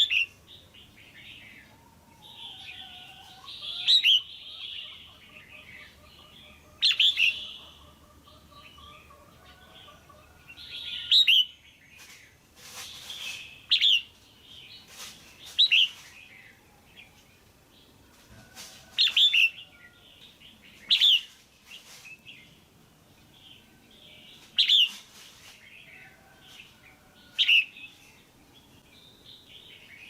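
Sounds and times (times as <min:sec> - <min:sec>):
bulbul chirping calls: 0:03.5 - 0:09.2.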